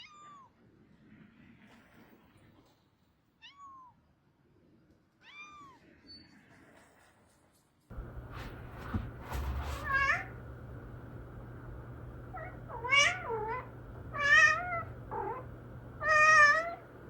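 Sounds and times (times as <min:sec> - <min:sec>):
cat meowing: 0:09.7 - 0:10.4, 0:12.3 - 0:17.0.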